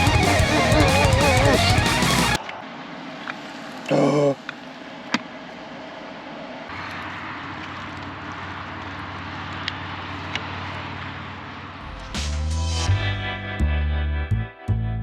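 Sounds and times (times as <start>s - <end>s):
low drone: 0.0s - 4.0s, 11.6s - 15.0s
car road and engine noise: 0.0s - 13.1s.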